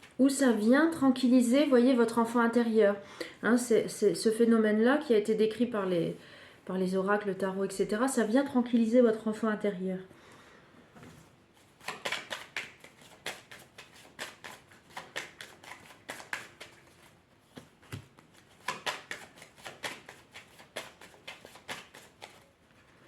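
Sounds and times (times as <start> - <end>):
cards being shuffled: 11.6 - 22.5.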